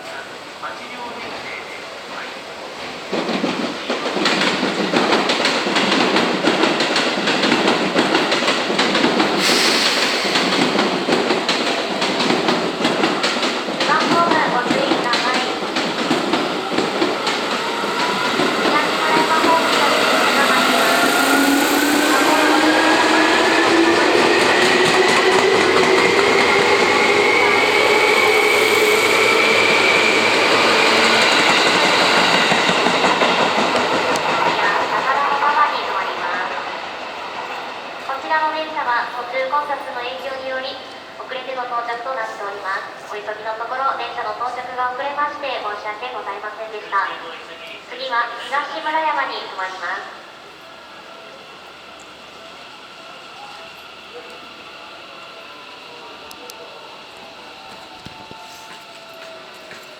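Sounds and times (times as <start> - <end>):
electric train rumbling past: 0.1 - 59.9
high hiss: 9.2 - 11.0
train motor whine: 15.6 - 34.7, 51.3 - 59.9.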